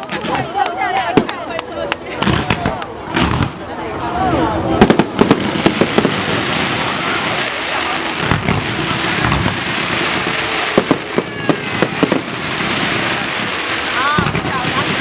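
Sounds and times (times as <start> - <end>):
fireworks bangs: 0.0 - 3.6, 4.7 - 15.0
fireworks crackling: 0.0 - 15.0.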